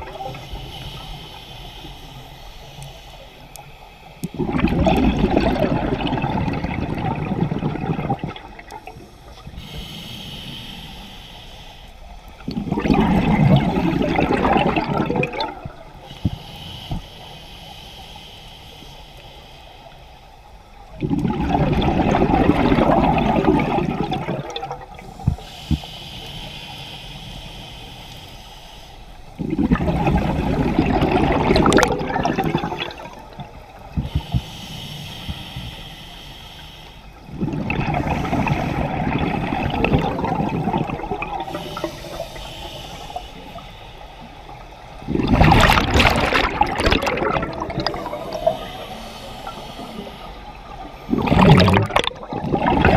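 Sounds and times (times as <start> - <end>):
exhaled bubbles underwater: 0.0 - 1.4, 4.2 - 9.7, 12.4 - 16.0, 20.9 - 25.4, 29.4 - 34.4, 37.3 - 43.6, 44.4 - 52.9.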